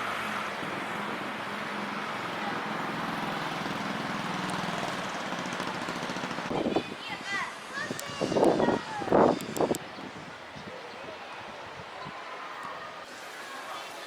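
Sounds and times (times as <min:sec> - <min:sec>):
vehicle engine drone: 0:00.0 - 0:06.6.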